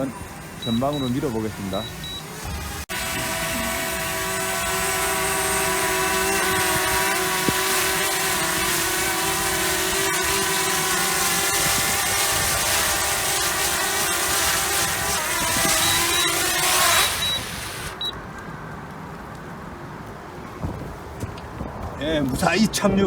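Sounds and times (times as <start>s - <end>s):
drone propellers whining: 0.0s - 18.2s
wind noise: 0.0s - 23.0s.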